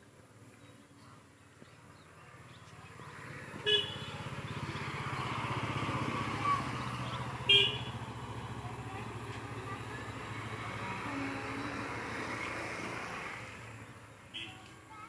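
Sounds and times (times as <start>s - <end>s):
road traffic noise: 0.0s - 15.0s
vehicle engine running: 2.4s - 12.0s.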